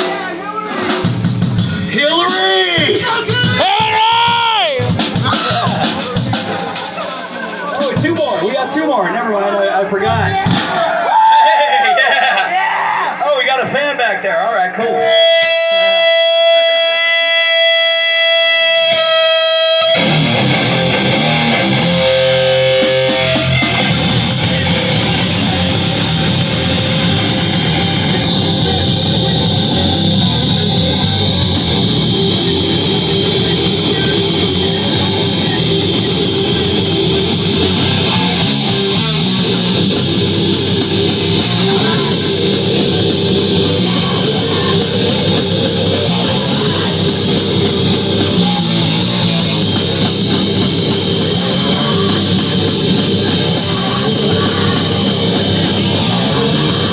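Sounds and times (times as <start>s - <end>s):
heavy rock band playing: 0.0s - 9.2s, 10.0s - 14.0s, 14.8s - 56.9s
held guitar note: 15.0s - 56.9s.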